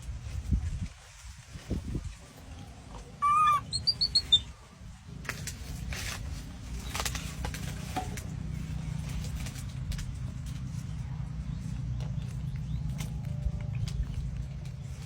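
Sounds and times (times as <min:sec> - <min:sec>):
low steady rumble: 0:00.0 - 0:15.0
animal wavering call: 0:03.2 - 0:04.5
quick high chirps: 0:03.2 - 0:04.5.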